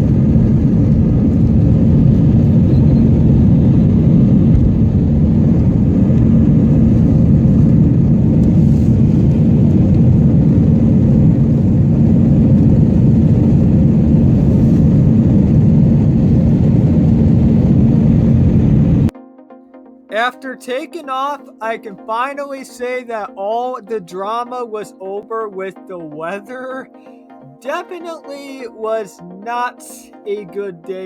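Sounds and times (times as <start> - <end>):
jet engines roaring in cabin: 0.0 - 19.1.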